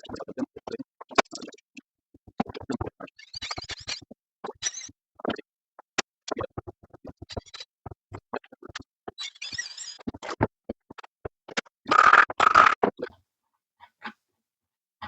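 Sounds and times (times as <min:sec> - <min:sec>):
scraping squeak: 0:09.2 - 0:10.0.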